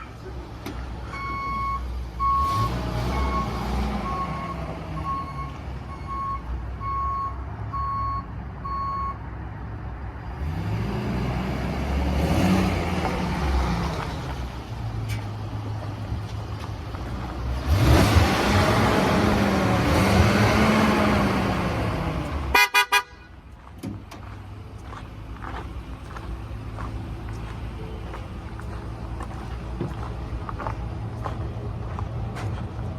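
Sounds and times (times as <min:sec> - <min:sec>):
reversing alarm beeping: 0:01.2 - 0:09.2
truck engine running: 0:11.6 - 0:32.9.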